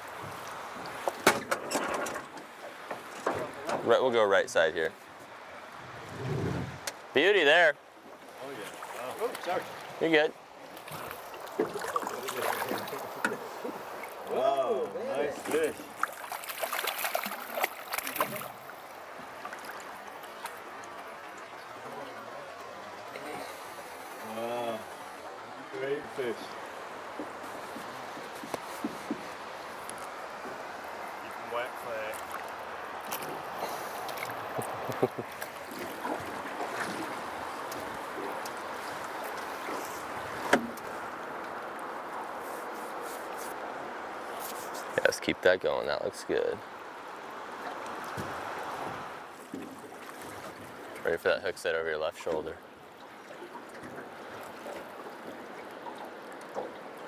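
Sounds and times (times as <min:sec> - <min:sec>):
river water flowing: 0:00.0 - 0:57.0
water splashes: 0:00.0 - 0:57.0
knocks on boat: 0:01.2 - 0:03.9, 0:27.2 - 0:29.3, 0:40.4 - 0:40.8, 0:48.1 - 0:49.8.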